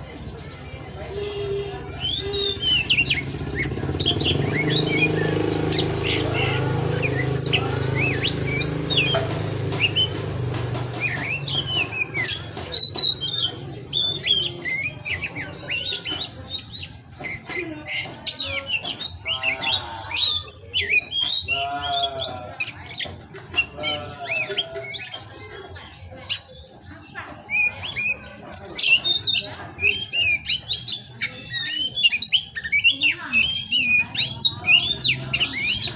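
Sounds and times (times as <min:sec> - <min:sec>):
magpie-robin singing: 0:00.0 - 0:35.9.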